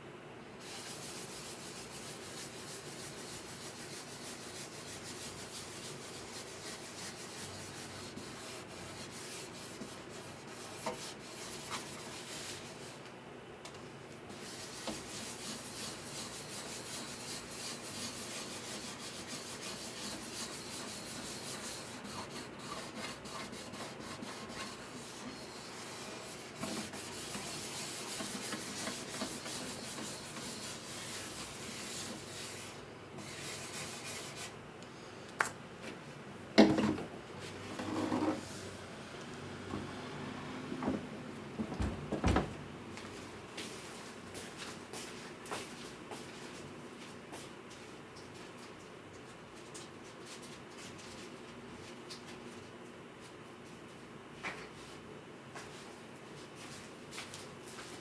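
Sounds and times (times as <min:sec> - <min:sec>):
hand rubbing on wood: 0:00.6 - 0:13.0, 0:14.3 - 0:34.6.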